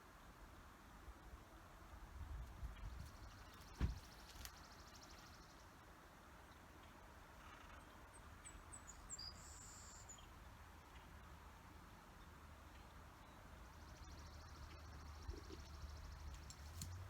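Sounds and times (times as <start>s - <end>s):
sharp thump: 3.8s - 4.1s
bird chirping: 6.8s - 11.2s, 12.2s - 17.0s.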